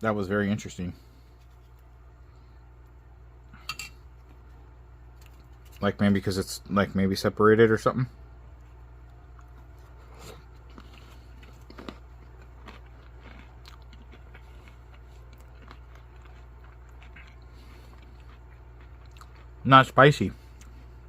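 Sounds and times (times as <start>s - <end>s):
steady low hum: 0.0s - 21.0s
person chewing food: 8.5s - 19.6s, 20.4s - 21.0s.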